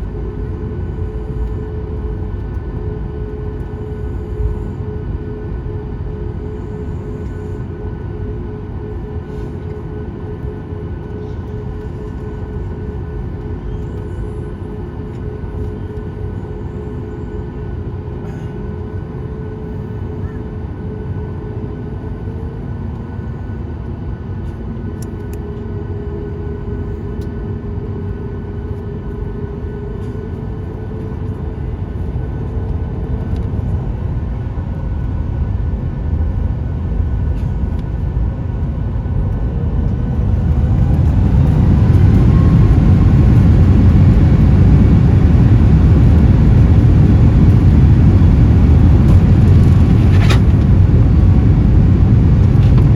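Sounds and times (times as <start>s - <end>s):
jet engines spooling up: 39.3s - 52.9s.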